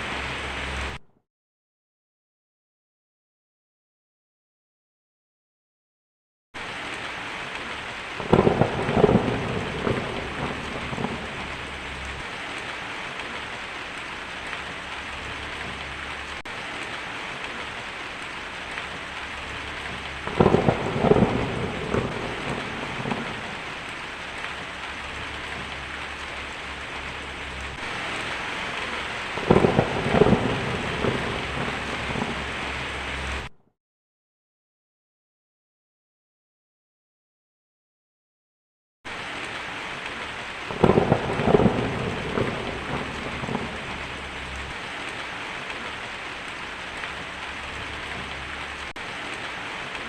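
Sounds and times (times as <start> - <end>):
heavy rain hissing: 0.0 - 1.0, 6.6 - 33.5, 39.1 - 50.0
crackling thunderclaps: 6.6 - 33.5, 39.1 - 50.0.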